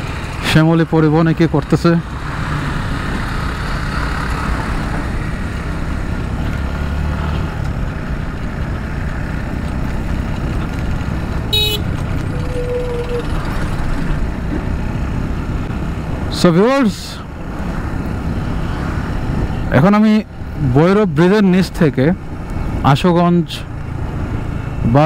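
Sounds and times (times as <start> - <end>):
motorcycle riding in traffic: 0.0 - 25.0
short vehicle horn toot: 11.5 - 11.9.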